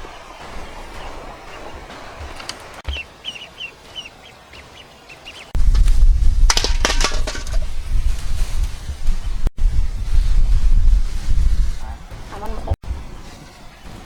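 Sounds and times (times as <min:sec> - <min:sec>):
wind rumble on microphone: 0:05.5 - 0:14.0.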